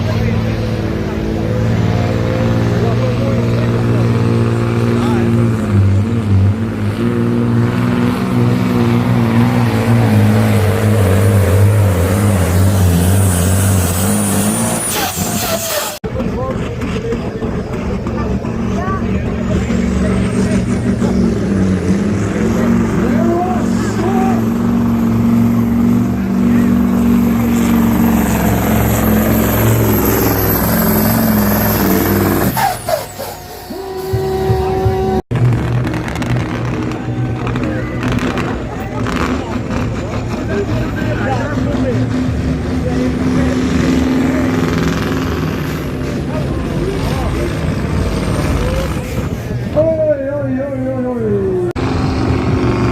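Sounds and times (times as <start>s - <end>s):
truck engine revving hard: 0.0s - 52.9s
high whistle: 30.3s - 35.2s.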